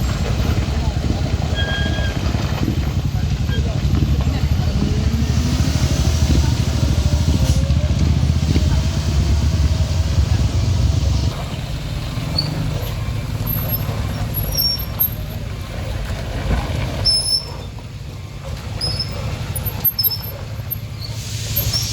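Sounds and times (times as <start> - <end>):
heavy vehicle engine rumbling: 0.0 - 21.9
short high squeaks: 1.5 - 2.4, 12.3 - 15.3, 17.0 - 17.8, 18.8 - 21.9.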